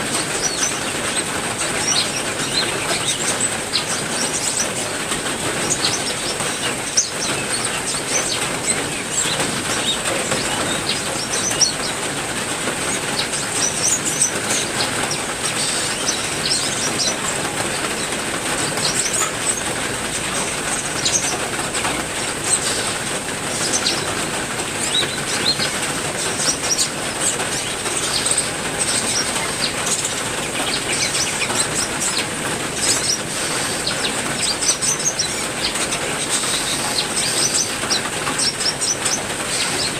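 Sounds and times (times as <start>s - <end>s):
cage birds chirping: 0.0s - 39.9s
steady rain falling: 0.0s - 39.9s.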